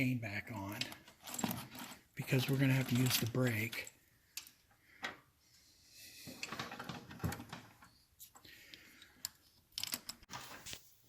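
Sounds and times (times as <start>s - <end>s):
drive chain clicking and rattling: 0.8s - 4.0s.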